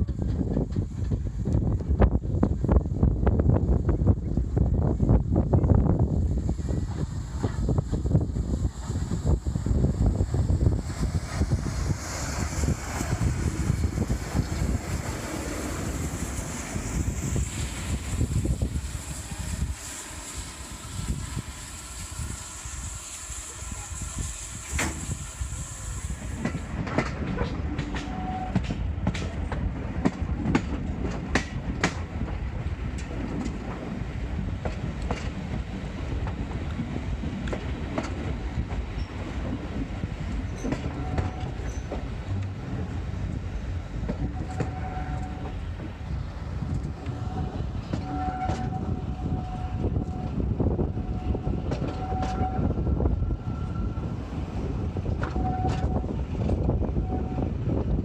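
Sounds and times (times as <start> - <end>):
train rumbling: 0.0 - 58.0
steam hiss: 5.8 - 55.0.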